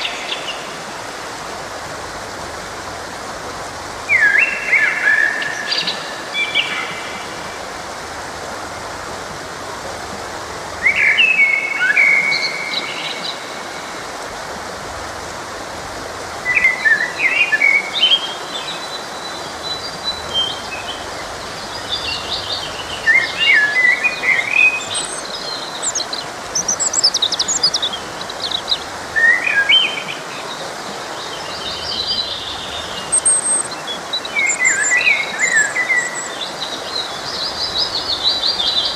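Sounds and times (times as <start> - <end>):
stream rushing: 0.0 - 38.9
songbirds chirping and trilling: 16.4 - 38.9.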